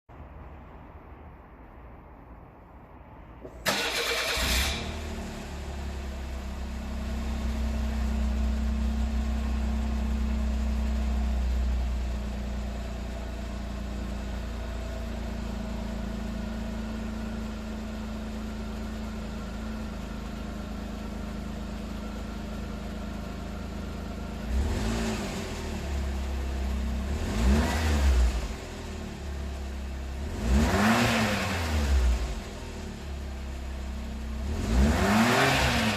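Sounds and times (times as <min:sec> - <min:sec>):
car engine starting and idling: 0:02.7 - 0:35.9
car engine revving: 0:24.4 - 0:28.9, 0:30.1 - 0:32.6, 0:34.3 - 0:35.9.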